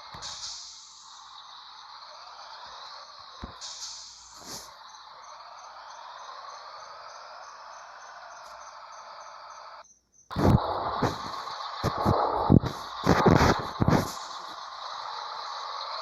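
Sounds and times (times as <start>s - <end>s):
bursts of air: 0.0s - 4.9s, 10.3s - 16.0s
truck engine starting: 0.0s - 16.0s
high insect-like hiss: 0.1s - 16.0s.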